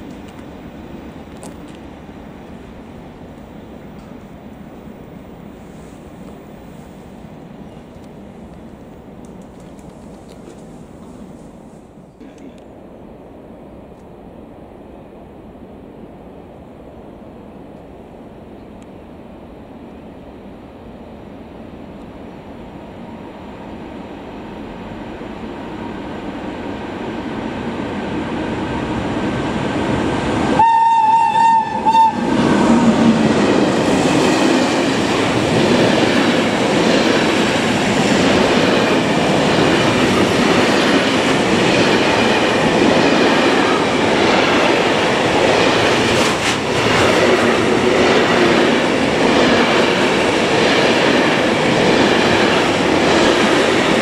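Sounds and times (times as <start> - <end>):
train wheels clattering on rails: 29.2 - 54.0
train horn blast: 30.5 - 32.4.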